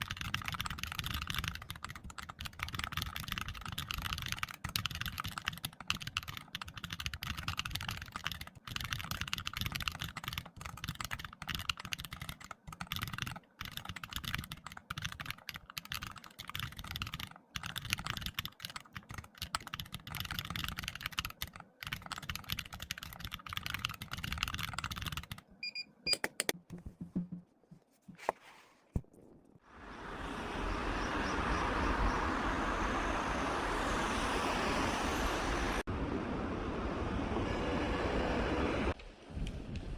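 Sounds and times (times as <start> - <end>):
fast keyboard typing: 0.0 - 25.5.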